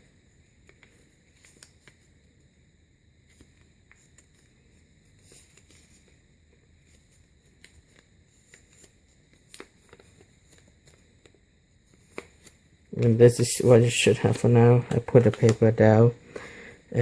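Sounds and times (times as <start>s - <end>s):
paper being folded and creased: 0.5s - 2.1s, 3.3s - 6.2s, 6.8s - 12.6s.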